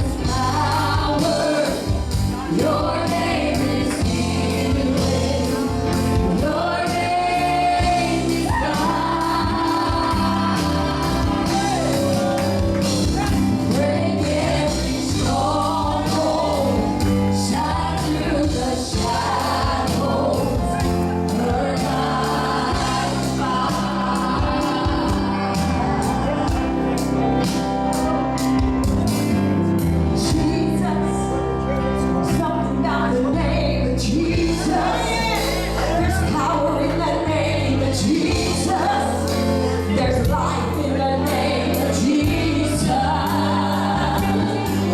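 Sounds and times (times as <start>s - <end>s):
voices singing gospel song: 0.0s - 27.5s, 30.2s - 31.5s, 32.2s - 44.9s
steady drum beat: 0.0s - 29.3s
band with held bass notes: 0.0s - 44.9s.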